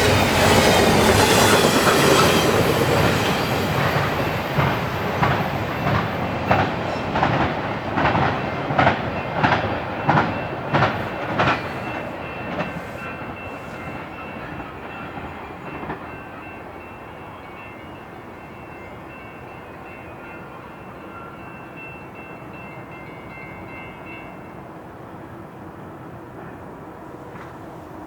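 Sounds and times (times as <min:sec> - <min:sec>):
train wheels clacking over rail joints: 0:00.0 - 0:16.1.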